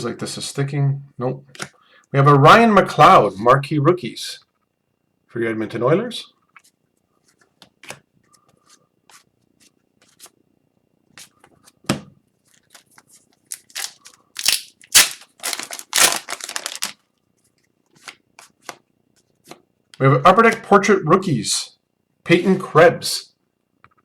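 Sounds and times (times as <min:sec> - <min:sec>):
cards flipped by hand: 0:12.5 - 0:17.0.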